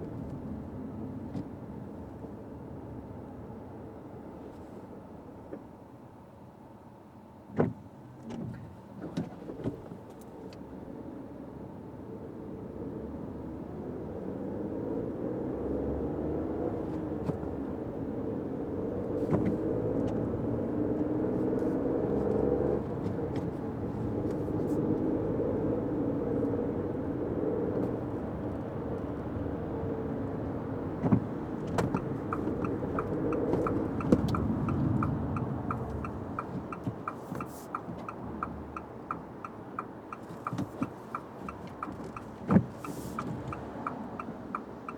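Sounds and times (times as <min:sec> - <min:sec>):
road and engine noise: 0:00.0 - 0:44.9
turn signal ticking: 0:15.7 - 0:44.9
light taps: 0:31.0 - 0:44.9.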